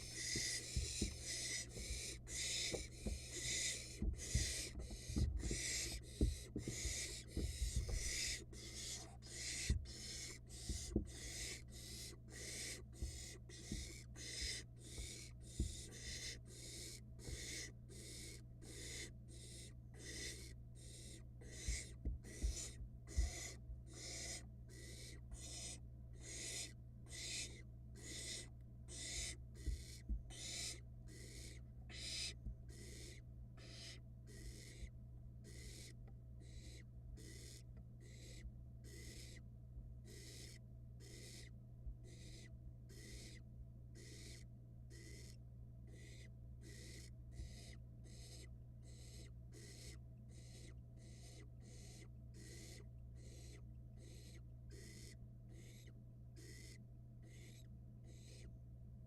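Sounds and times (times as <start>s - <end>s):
soft low thumps: 0.0s - 8.4s, 10.6s - 11.2s, 13.0s - 14.0s, 21.6s - 23.4s, 29.6s - 30.3s
owl nestlings hissing: 0.0s - 39.4s, 40.0s - 43.4s, 44.0s - 58.5s.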